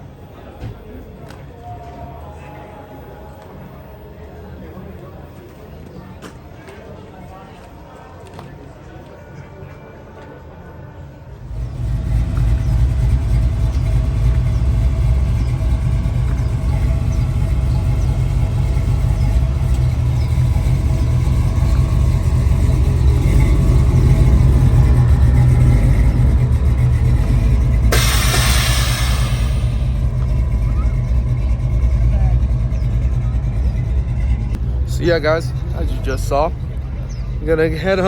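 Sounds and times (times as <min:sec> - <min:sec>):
vehicle engine rumbling: 0:00.0 - 0:38.0
burst of hiss: 0:27.9 - 0:30.0.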